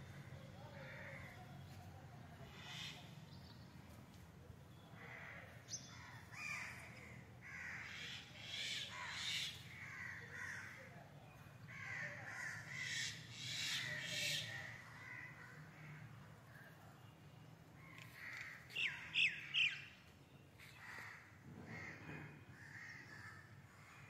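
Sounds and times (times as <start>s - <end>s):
harsh bird calls: 17.8s - 23.6s.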